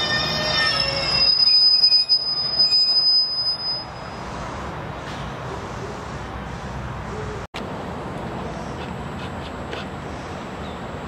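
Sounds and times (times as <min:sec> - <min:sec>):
high squeal of wheels on rail: 0:00.0 - 0:05.3.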